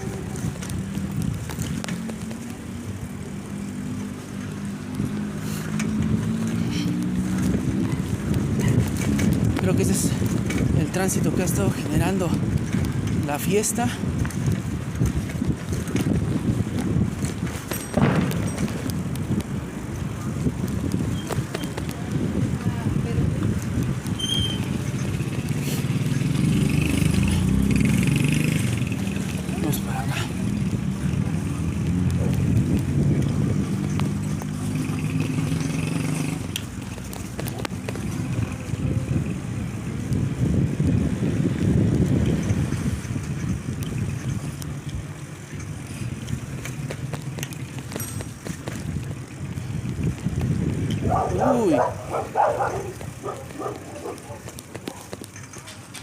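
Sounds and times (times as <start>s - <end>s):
road noise: 0.0s - 56.0s
vehicle engine passing by: 25.1s - 36.6s.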